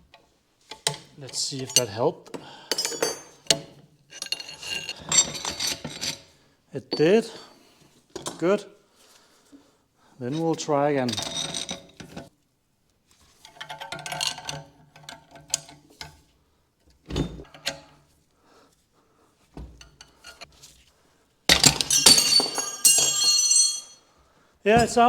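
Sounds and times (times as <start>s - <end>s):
steel tools clinking on metal: 1.4s - 2.0s, 2.7s - 6.2s, 21.5s - 24.0s.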